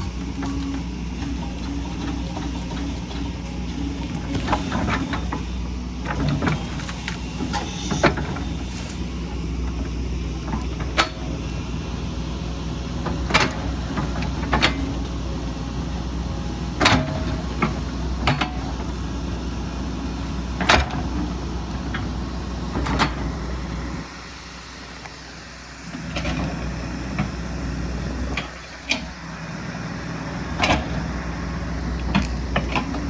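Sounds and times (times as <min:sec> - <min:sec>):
excavator diesel engine: 0:00.0 - 0:33.0.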